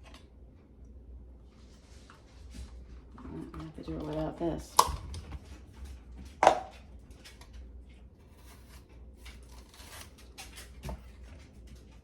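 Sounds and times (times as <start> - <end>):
cucumber scraping across slicer blade: 8.2 - 10.4.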